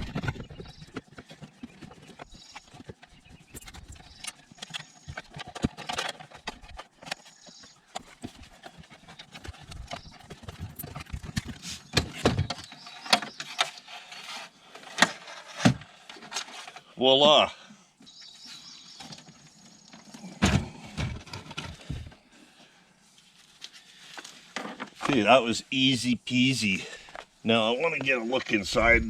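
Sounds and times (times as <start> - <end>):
plumbing parts knocking and scraping: 0.0 - 17.3, 19.0 - 22.3, 24.2 - 25.3.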